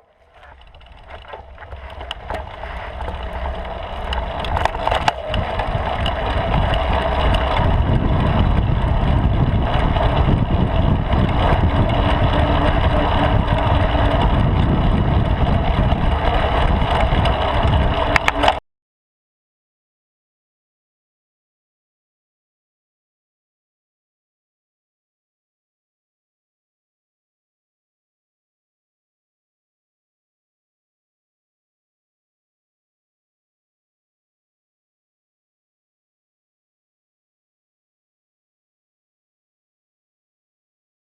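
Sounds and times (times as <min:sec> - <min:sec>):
bicycle tyre noise: 0:00.0 - 0:18.6
bike knocks and rattles: 0:00.1 - 0:18.6
wind rush: 0:01.8 - 0:18.5.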